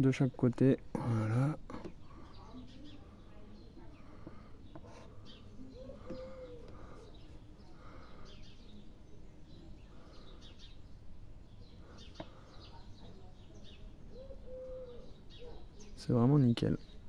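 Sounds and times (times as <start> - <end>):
birds chirping: 0.0 - 17.0
low cooing call: 5.6 - 7.2, 14.1 - 15.7.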